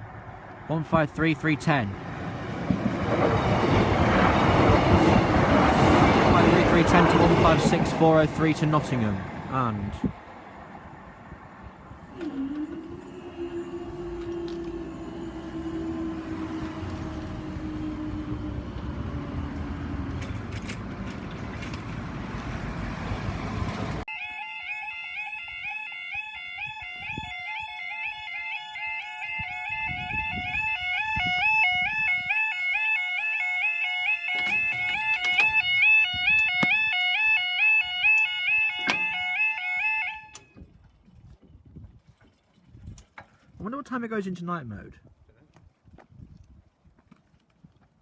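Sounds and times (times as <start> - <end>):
diesel train rumbling past: 0.0 - 24.1
level crossing alarm two-tone warble: 12.1 - 19.2, 24.1 - 40.5.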